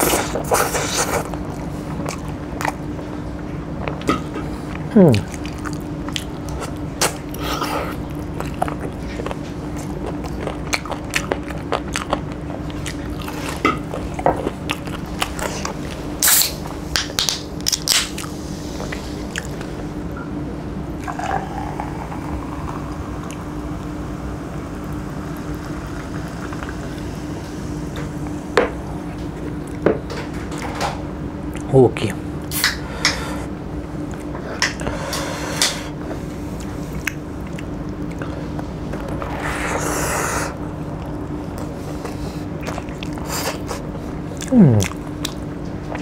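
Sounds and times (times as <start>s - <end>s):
steady low hum: 0.0s - 46.0s
chewing and lip smacks: 8.1s - 19.7s, 36.6s - 39.2s, 41.0s - 46.0s
cola pouring into a glass: 21.0s - 24.0s.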